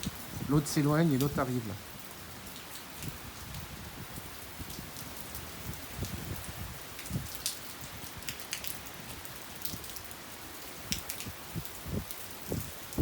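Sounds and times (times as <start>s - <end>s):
soft low wind gusts: 0.0s - 13.0s
steady rain: 0.0s - 13.0s.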